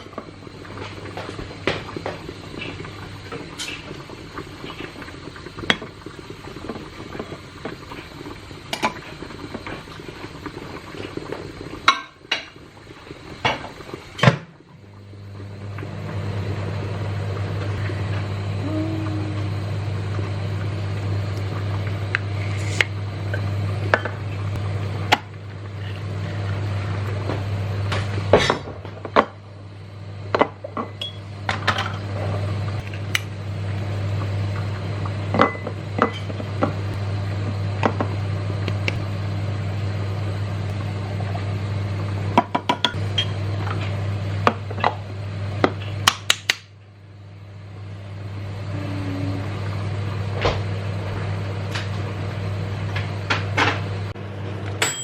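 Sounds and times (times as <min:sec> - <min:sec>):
steady low hum: 0:00.0 - 0:55.0
dishes and utensils clinking: 0:54.8 - 0:55.0.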